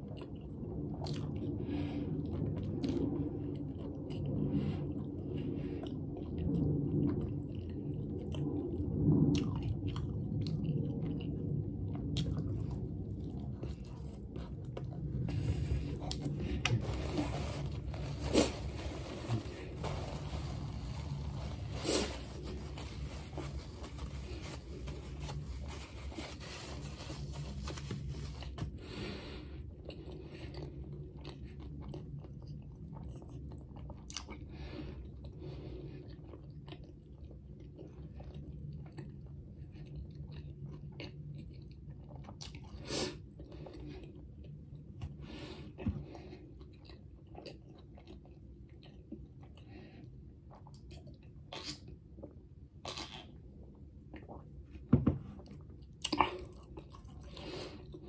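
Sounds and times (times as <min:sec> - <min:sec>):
chewing food: 0:00.0 - 0:58.0
paper wrapper crinkling: 0:16.7 - 0:28.6.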